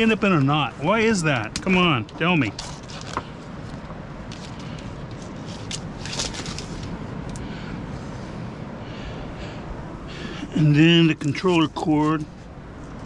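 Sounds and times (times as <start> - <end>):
steady background hiss: 0.0 - 13.0
electrical cord rustling: 1.4 - 7.4.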